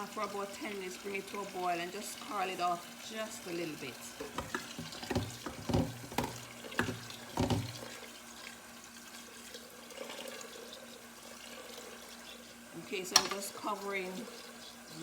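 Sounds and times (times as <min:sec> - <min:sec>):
tap water running into pot: 0:00.0 - 0:15.0
pot knocks: 0:04.2 - 0:07.9.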